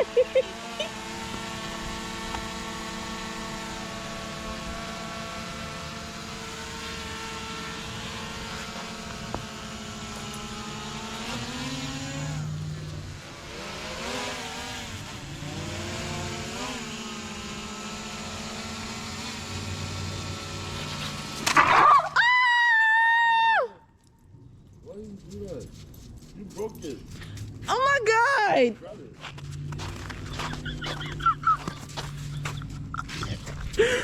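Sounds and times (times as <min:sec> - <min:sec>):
drone propeller whine: 0:00.0 - 0:21.7, 0:29.3 - 0:34.0.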